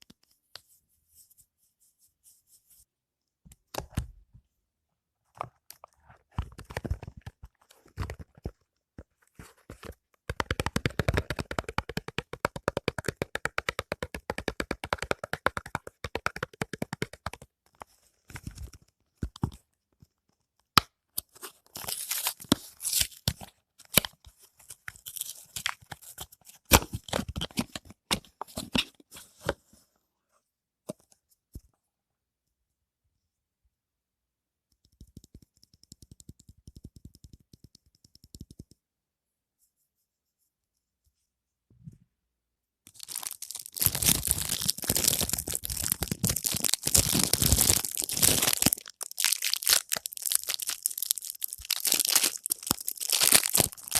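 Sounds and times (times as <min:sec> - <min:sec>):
packaging being torn open: 0:43.0 - 0:53.9.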